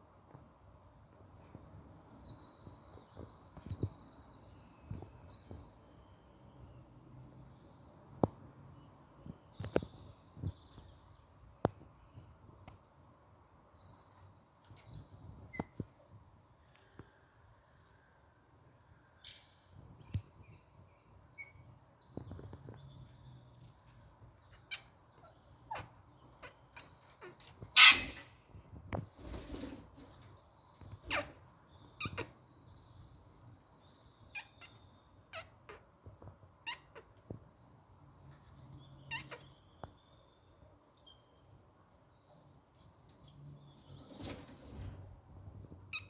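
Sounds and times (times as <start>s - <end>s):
parrots chirping: 24.7s - 28.2s, 39.1s - 39.5s
parrot squawking: 27.2s - 28.3s.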